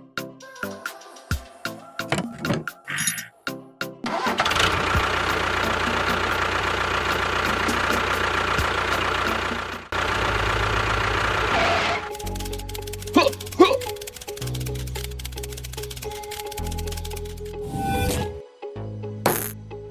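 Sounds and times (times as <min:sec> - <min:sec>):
engine running: 0:04.1 - 0:17.8.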